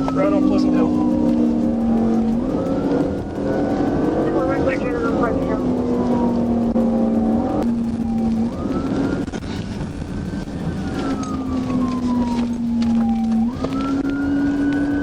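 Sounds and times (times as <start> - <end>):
car engine and road noise: 0.0 - 15.0
police siren wailing: 0.0 - 15.0.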